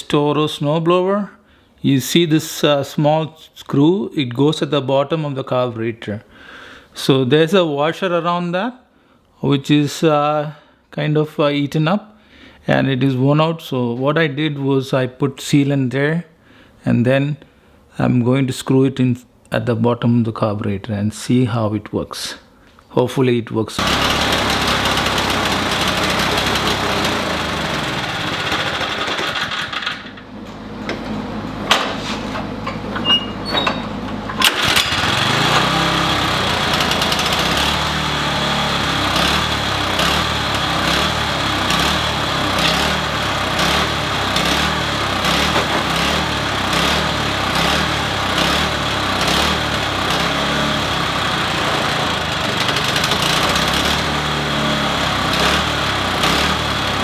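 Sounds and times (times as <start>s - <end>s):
small engine surging unevenly: 23.8s - 29.7s, 34.5s - 57.0s
engine knocks: 23.8s - 30.2s, 33.7s - 54.5s.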